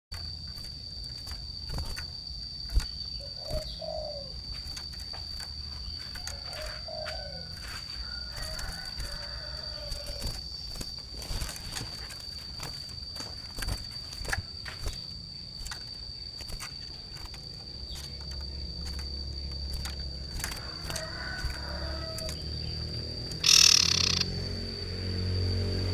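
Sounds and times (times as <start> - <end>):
steady high-pitched whine: 0.1 - 25.9
bird cooing calls: 3.1 - 4.5, 5.8 - 10.3, 23.4 - 24.2.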